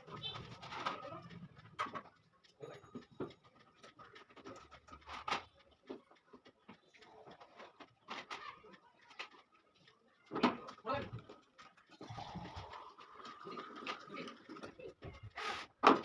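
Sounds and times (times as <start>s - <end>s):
parts clicking knocking and scraping: 0.0s - 11.9s.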